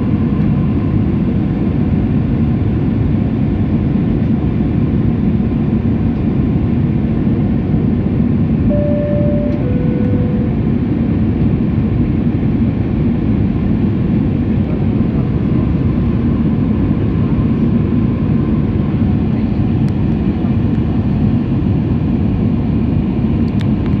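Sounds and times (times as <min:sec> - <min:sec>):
two-note cabin chime: 0:08.7 - 0:10.8
airliner cabin noise: 0:08.7 - 0:11.1.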